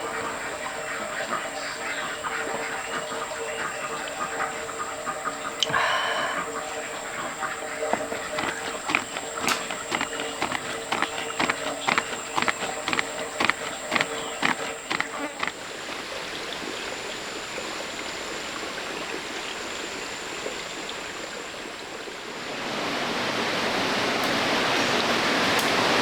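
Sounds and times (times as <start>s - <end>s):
stream water flowing: 1.6s - 26.0s
high insect drone: 5.6s - 16.9s
quick knocks: 7.9s - 16.0s.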